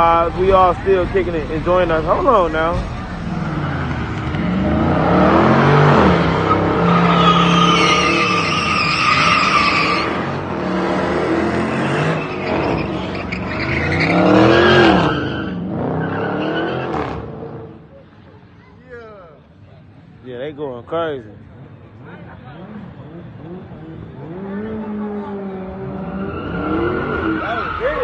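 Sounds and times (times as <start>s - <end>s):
tires squealing on pavement: 2.0s - 17.7s, 22.7s - 28.0s
car engine revving hard: 3.2s - 17.7s.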